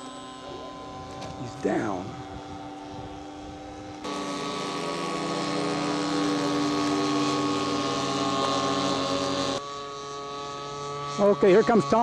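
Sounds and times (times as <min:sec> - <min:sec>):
model airplane engine running: 0:00.0 - 0:12.0.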